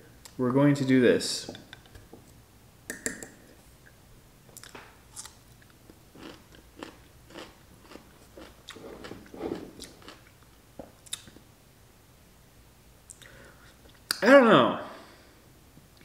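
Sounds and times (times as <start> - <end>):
crunchy biting and chewing: 6.2 - 10.3.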